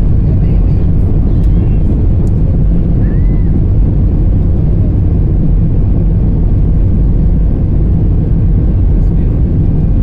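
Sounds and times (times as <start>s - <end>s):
jet engines low rumble in cabin: 0.0s - 10.0s.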